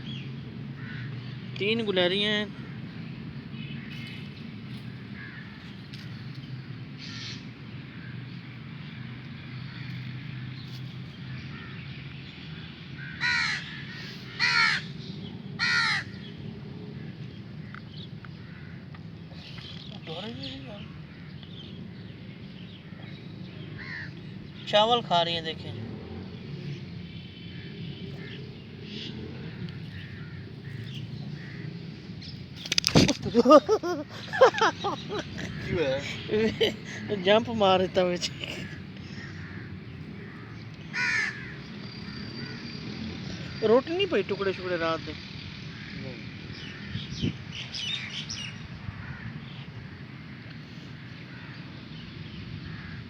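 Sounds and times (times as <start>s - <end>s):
crow cawing: 0.8s - 1.3s, 2.5s - 2.9s, 4.9s - 5.8s, 7.0s - 8.3s, 11.3s - 11.9s, 12.6s - 15.0s, 15.6s - 16.3s, 17.0s - 19.0s, 20.8s - 22.0s, 22.8s - 24.3s, 27.5s - 31.8s, 38.5s - 43.7s, 45.6s - 47.1s, 48.9s - 50.0s, 50.9s - 51.7s, 52.6s - 53.0s.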